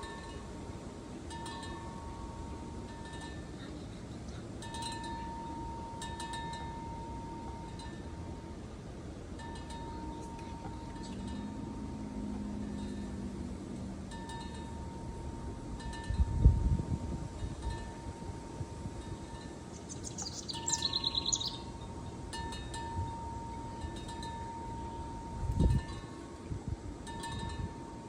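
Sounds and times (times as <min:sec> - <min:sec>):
wind chimes ringing: 0:00.0 - 0:28.0
rapid high chirps: 0:19.7 - 0:21.7.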